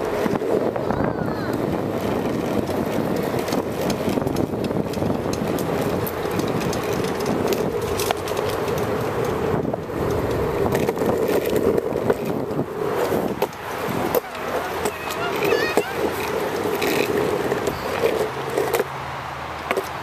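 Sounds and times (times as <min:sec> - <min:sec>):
bicycle rolling: 0:00.0 - 0:20.0
small clicks and knocks: 0:02.5 - 0:12.4, 0:19.6 - 0:20.0.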